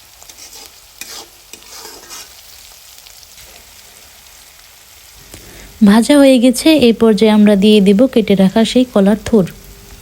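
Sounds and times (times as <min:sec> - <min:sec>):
faint sizzle: 0:00.0 - 0:10.0
spatula scraping a pan: 0:00.1 - 0:02.7.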